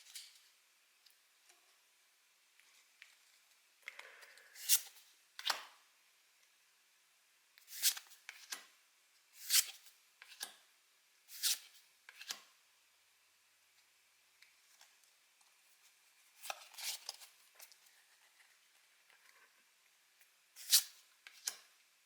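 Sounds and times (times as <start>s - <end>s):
trading cards swishing and flicking: 4.6s - 5.6s, 7.6s - 8.6s, 9.4s - 10.5s, 11.3s - 12.4s, 20.6s - 21.6s
cards rustling: 16.3s - 18.5s.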